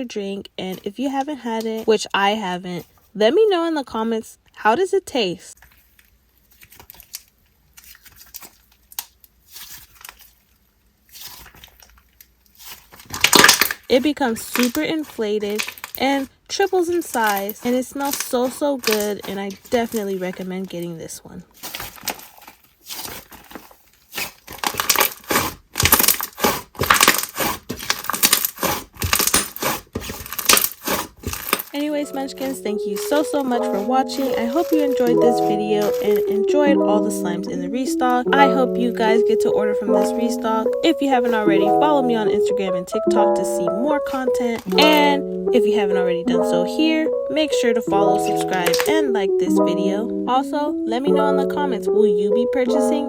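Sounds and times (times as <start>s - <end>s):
slime crackling and popping: 6.5s - 16.0s, 17.0s - 20.2s, 21.6s - 36.6s, 44.0s - 45.6s, 48.2s - 49.0s.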